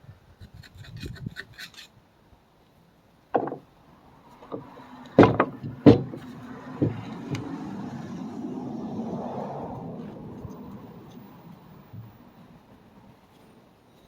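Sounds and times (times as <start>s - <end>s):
hand tools scraping metal: 0.6s - 2.0s
sharp knock: 5.2s - 7.0s.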